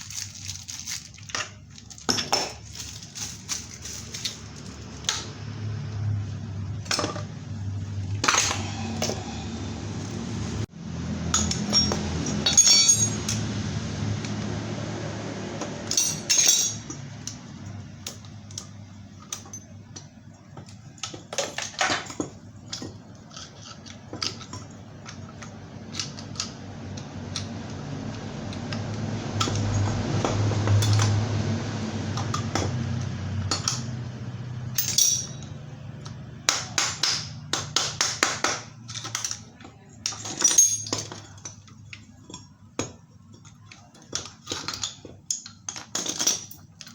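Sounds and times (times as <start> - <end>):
steady low hum: 0.0 - 19.0
metal tools clinking and knocking: 11.3 - 13.4, 15.8 - 17.4, 34.7 - 35.6, 38.8 - 46.9.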